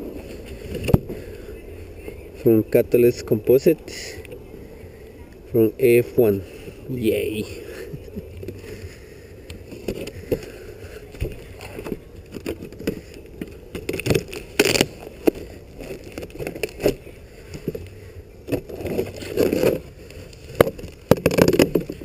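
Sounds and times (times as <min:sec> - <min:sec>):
cardboard box being handled: 0:09.7 - 0:22.0.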